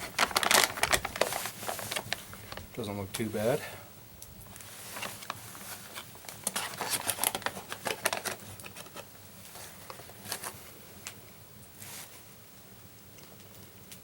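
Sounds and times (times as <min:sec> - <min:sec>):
meal pouch crinkling: 0:00.0 - 0:02.7, 0:04.6 - 0:11.2.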